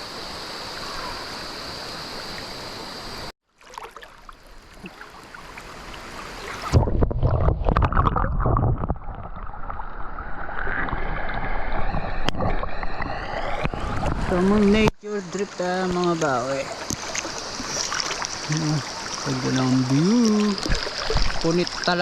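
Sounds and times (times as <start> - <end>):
stream water flowing: 0.0 - 22.0.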